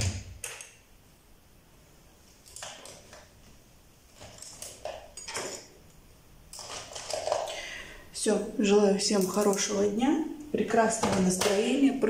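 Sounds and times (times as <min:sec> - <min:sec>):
small objects clattering and rustling: 0:04.1 - 0:05.8, 0:06.5 - 0:07.8.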